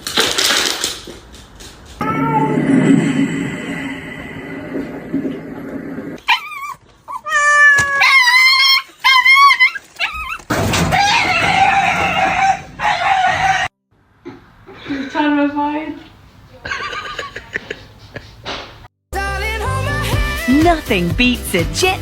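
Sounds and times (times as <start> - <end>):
rough noise: 2.0 - 6.2
dog yelping and whimpering: 6.2 - 11.2.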